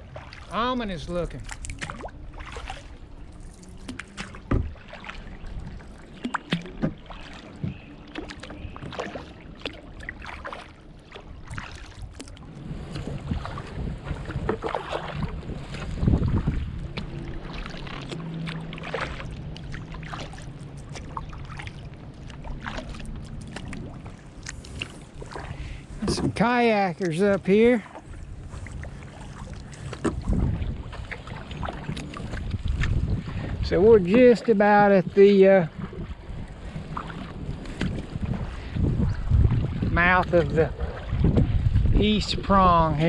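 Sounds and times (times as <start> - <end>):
kayak paddle splashing in water: 0.0 - 43.0
wind buffeting microphone: 11.4 - 43.0.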